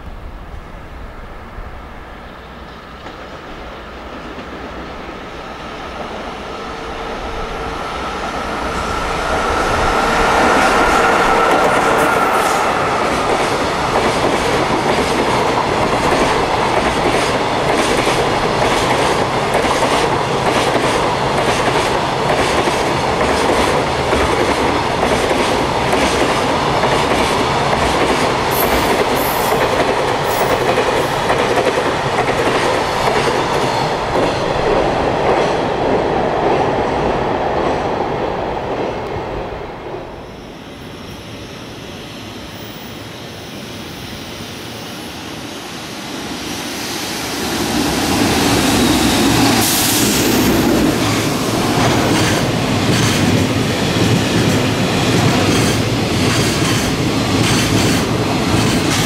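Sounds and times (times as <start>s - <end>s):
freight train rumble: 0.0s - 59.0s
two-tone whine: 5.9s - 14.9s.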